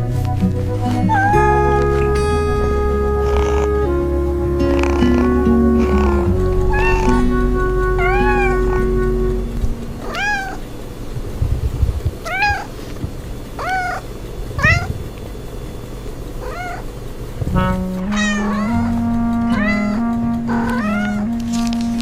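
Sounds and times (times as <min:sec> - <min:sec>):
background music: 0:00.0 - 0:10.6, 0:17.6 - 0:22.0
cat meowing: 0:06.7 - 0:07.1, 0:08.0 - 0:08.5, 0:10.0 - 0:10.6, 0:12.2 - 0:12.7, 0:13.6 - 0:14.0, 0:14.6 - 0:15.0, 0:16.4 - 0:16.8, 0:18.0 - 0:18.9, 0:19.6 - 0:21.3.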